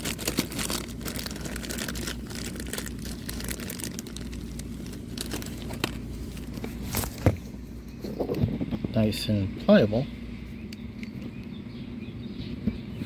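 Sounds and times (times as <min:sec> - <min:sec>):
rubber seals crinkling and clicking: 0:00.0 - 0:07.2
steady low hum: 0:00.0 - 0:13.0.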